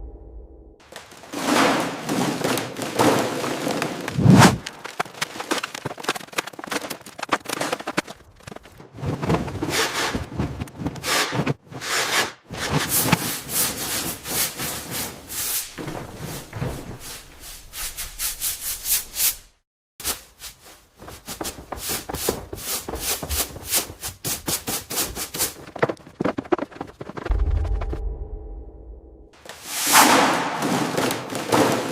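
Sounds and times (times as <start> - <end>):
rough rubbing strokes: 11.0 - 19.6.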